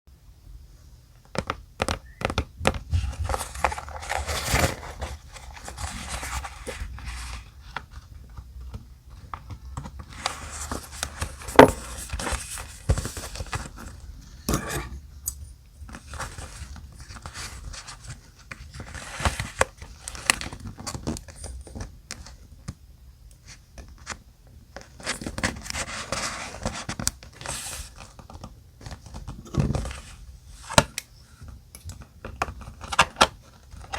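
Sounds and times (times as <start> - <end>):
paper rustling and crinkling: 2.7 - 14.5, 15.8 - 22.5, 24.8 - 30.9.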